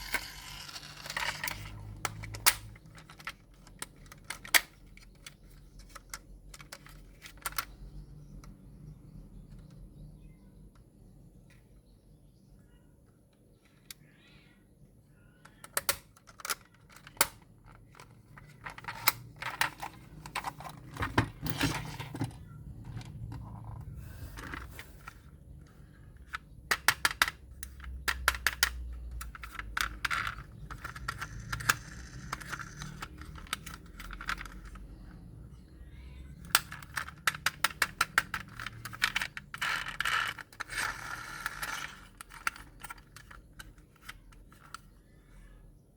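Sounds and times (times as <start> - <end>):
light rustling and scraping: 18.2 - 25.3.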